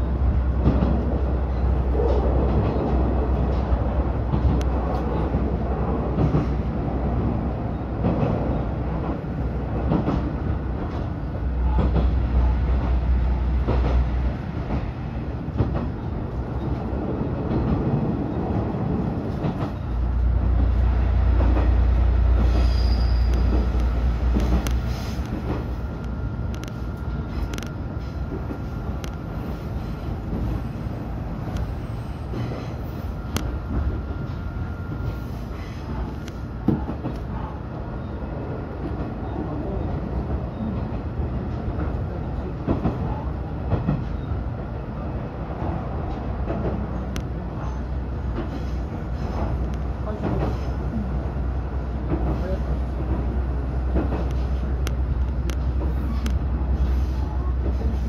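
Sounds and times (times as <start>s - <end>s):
rail joint clicks: 0.0s - 58.0s
railcar engine and wheels rumbling: 0.0s - 58.0s
high squeal: 22.4s - 23.6s.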